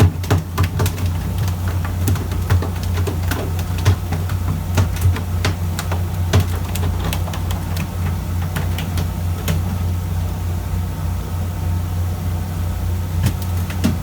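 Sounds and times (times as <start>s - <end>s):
sharp clicks and knocks: 0.0s - 10.0s, 13.2s - 14.0s
boat engine humming: 0.0s - 14.0s.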